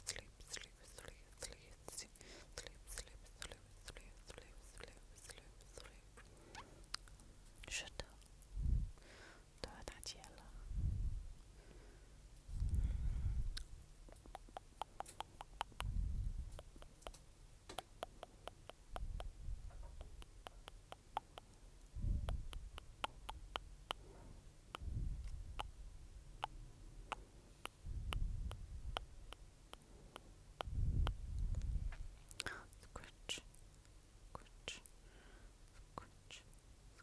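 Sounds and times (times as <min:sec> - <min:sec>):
wet tongue and lip clicks: 0:00.0 - 0:08.5, 0:13.5 - 0:24.1, 0:24.7 - 0:25.8, 0:26.4 - 0:34.9
soft low rumble: 0:06.2 - 0:09.0, 0:09.6 - 0:11.6, 0:12.3 - 0:17.4, 0:18.6 - 0:33.1.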